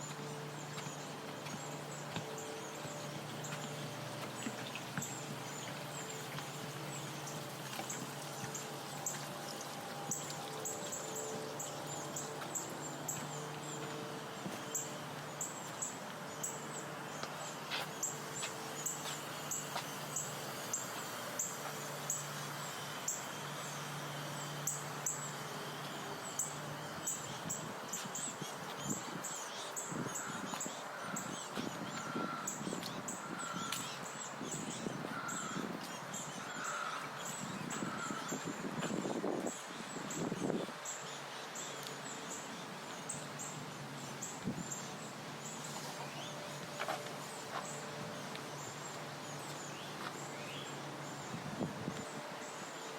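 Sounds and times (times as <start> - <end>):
footsteps walking: 0.0 - 16.3, 17.2 - 20.0, 45.8 - 50.2.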